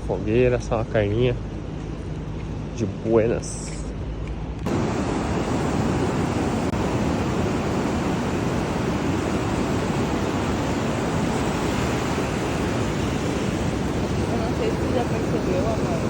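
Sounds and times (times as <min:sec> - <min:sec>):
ocean surf washing on beach: 0:04.7 - 0:16.0.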